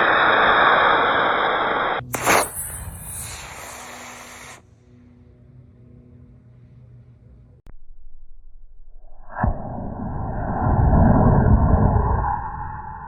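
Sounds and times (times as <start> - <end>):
rushing air hiss: 0.0 - 4.7.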